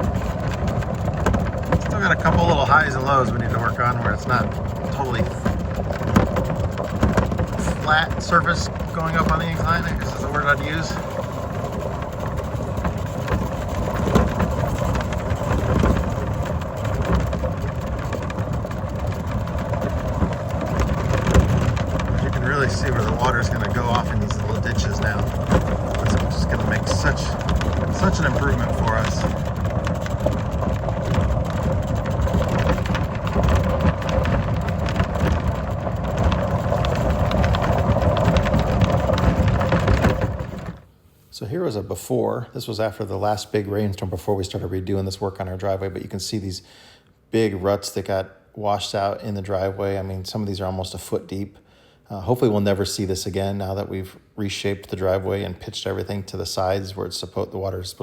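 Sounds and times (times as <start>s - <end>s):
tires crackling over gravel: 0.0s - 40.9s
vehicle engine rumble: 0.0s - 40.9s.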